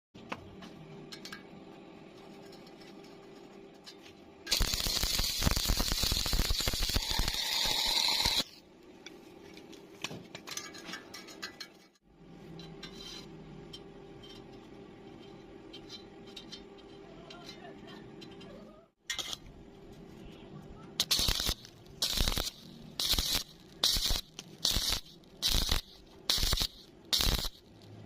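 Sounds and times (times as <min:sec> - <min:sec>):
welding arc crackling: 0:04.5 - 0:08.5, 0:21.0 - 0:28.0.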